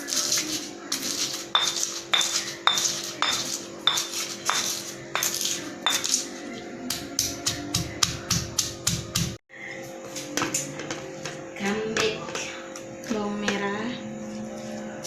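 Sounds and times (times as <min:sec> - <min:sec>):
pestle pounding in a mortar: 0:01.2 - 0:06.2, 0:06.9 - 0:09.4.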